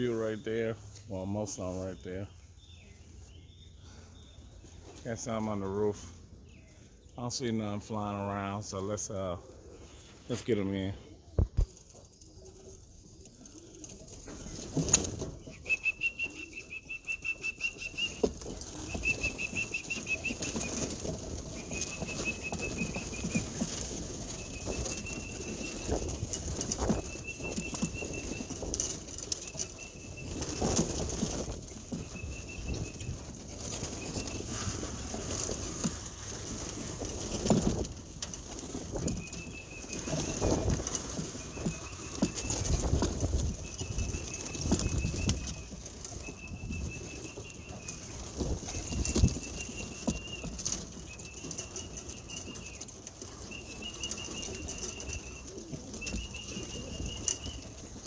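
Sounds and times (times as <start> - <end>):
pigeons flapping wings: 13.4 - 58.0.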